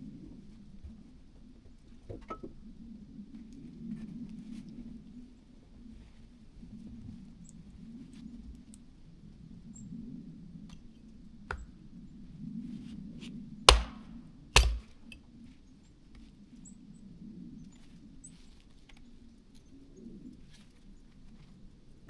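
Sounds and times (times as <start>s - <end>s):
sharp chopping blows: 13.7s - 14.9s.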